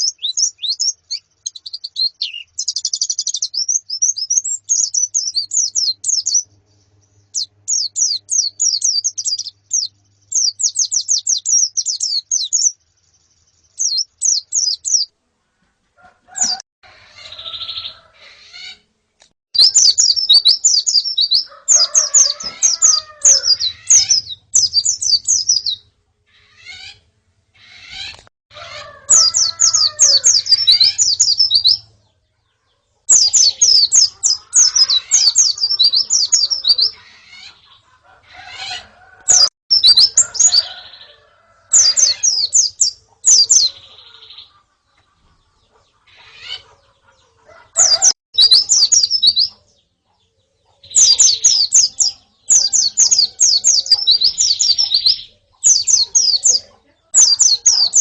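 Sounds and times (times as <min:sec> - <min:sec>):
lower curving bird calls: 0:00.0 - 0:06.5, 0:07.2 - 0:12.8, 0:19.6 - 0:31.9, 0:32.7 - 0:49.7
birds chirping in high trills: 0:00.0 - 0:15.1, 0:16.0 - 0:18.9, 0:19.6 - 0:58.0.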